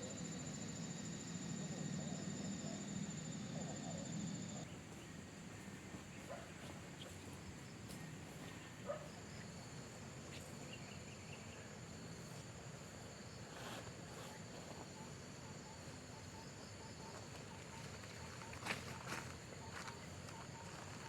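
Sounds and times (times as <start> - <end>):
insects trilling: 0.0 - 4.7, 8.9 - 21.0.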